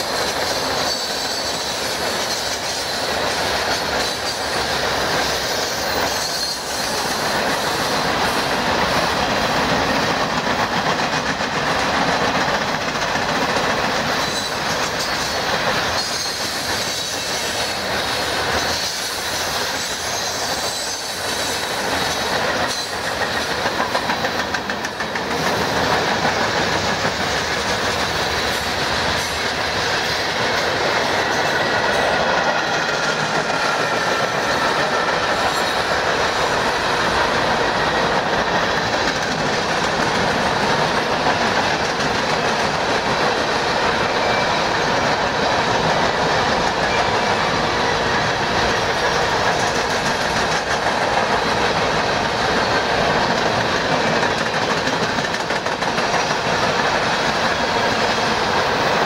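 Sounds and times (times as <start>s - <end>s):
high wheel squeal: 0.0s - 8.4s, 14.1s - 23.5s, 33.0s - 36.5s
train wheels rumbling on rails: 0.0s - 59.0s.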